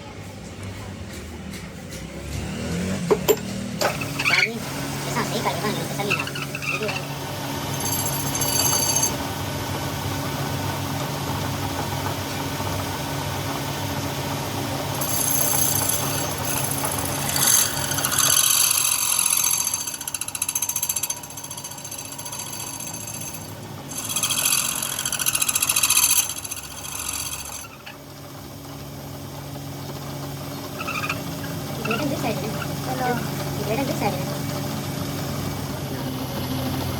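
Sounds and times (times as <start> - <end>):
power tool motor hum: 2.2 - 9.3, 14.8 - 28.1
high-pitched metal-working noise: 3.3 - 9.7, 14.8 - 28.0.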